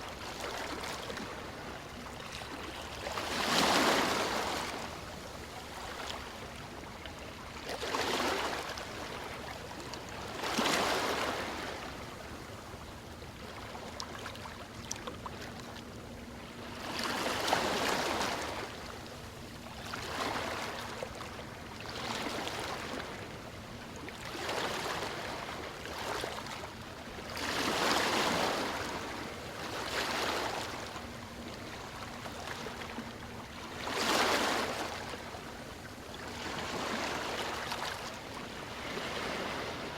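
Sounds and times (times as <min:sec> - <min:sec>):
ocean waves breaking: 0:02.5 - 0:04.9, 0:27.4 - 0:35.6, 0:36.3 - 0:39.9.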